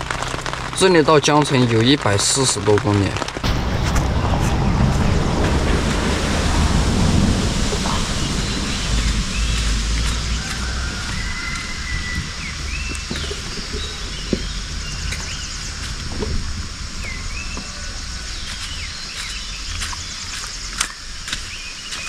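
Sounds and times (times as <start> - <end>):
steady hiss: 0.0 - 22.0
low rumble: 3.0 - 20.6
bird whistling swooping notes: 3.7 - 13.6.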